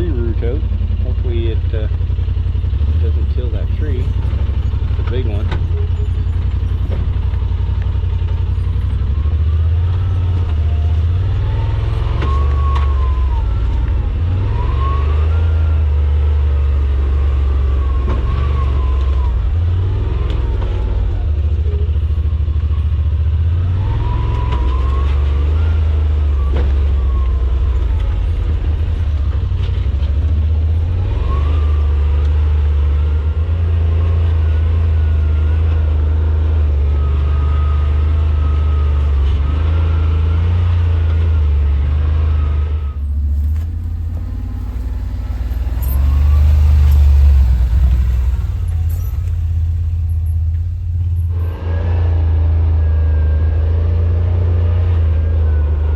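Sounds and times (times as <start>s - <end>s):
utility vehicle engine revving: 0.0s - 55.9s.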